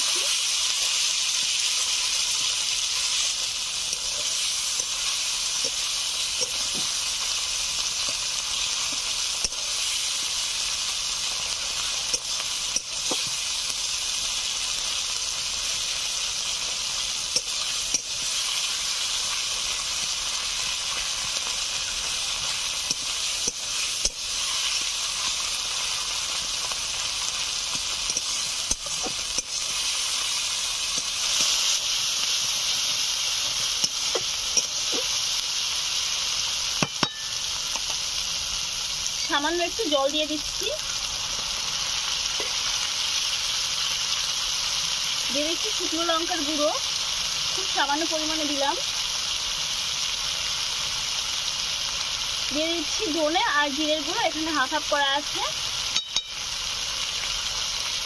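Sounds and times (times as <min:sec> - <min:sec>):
food sizzling in oil: 0:00.0 - 0:58.0
utensil clicking against pan: 0:27.7 - 0:29.6.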